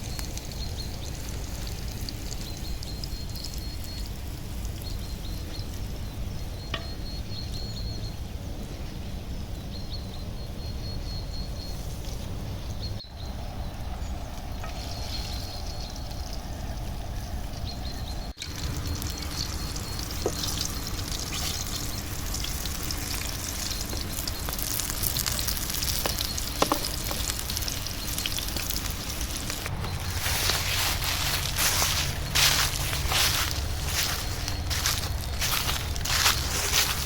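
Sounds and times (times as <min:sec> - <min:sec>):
fire crackling and snapping: 0:00.0 - 0:05.4, 0:18.3 - 0:37.0
food sizzling over campfire: 0:00.0 - 0:07.8, 0:14.3 - 0:37.0.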